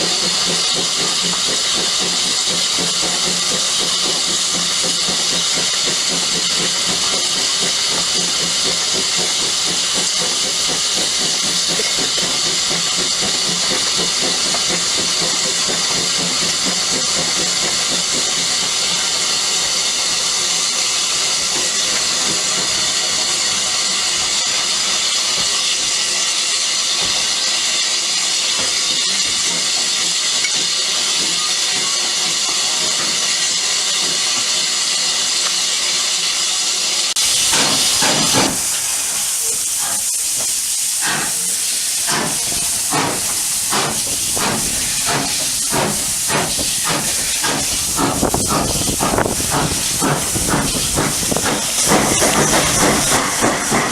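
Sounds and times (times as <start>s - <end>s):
steam blast: 0.0s - 53.9s
steam locomotive hissing: 0.0s - 53.9s
locomotive exhaust chuffs: 37.2s - 53.9s.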